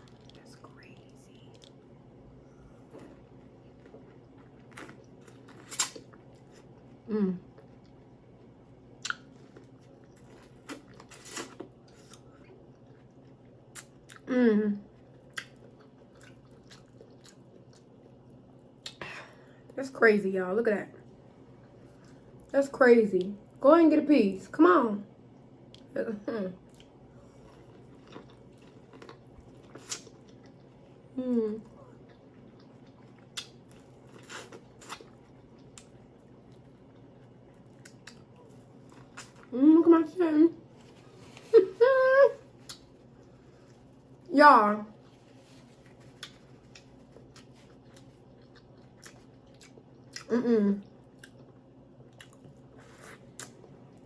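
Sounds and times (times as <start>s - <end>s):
person chewing: 2.9s - 6.9s, 9.0s - 14.3s, 15.1s - 19.0s, 26.7s - 30.7s, 31.8s - 39.5s, 42.5s - 44.3s, 45.1s - 54.0s
wet mouth clicks and smacks: 9.0s - 9.2s.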